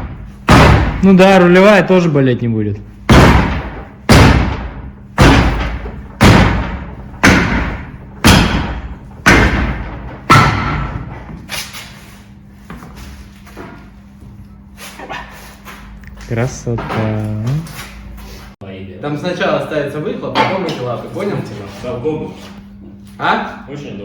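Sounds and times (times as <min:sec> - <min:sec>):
heavy echoing blows: 0:00.0 - 0:01.6, 0:03.0 - 0:11.3.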